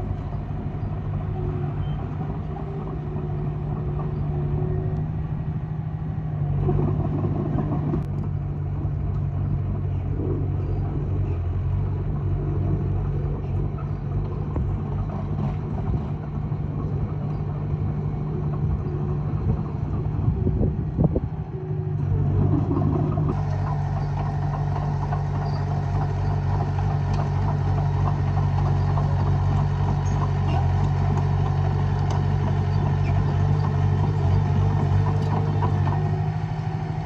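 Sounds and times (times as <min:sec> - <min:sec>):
bulldozer diesel engine under load: 0:00.0 - 0:37.0.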